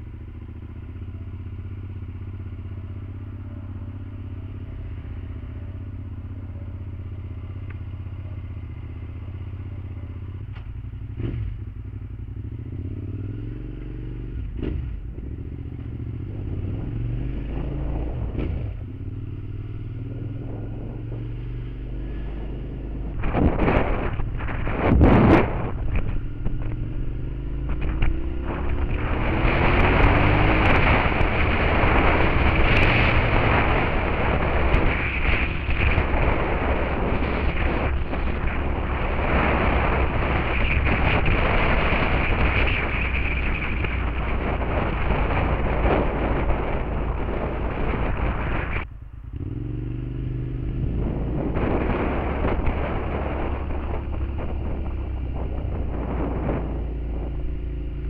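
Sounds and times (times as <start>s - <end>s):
motorcycle engine accelerating: 0.0s - 58.0s
wind rushing over microphone: 12.4s - 58.0s.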